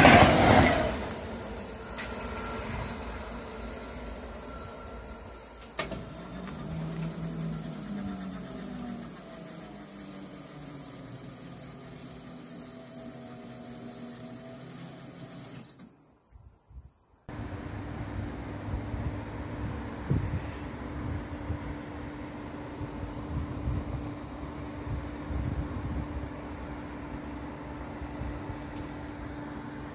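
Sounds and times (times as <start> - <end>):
passing train rumbling: 0.0 - 15.7.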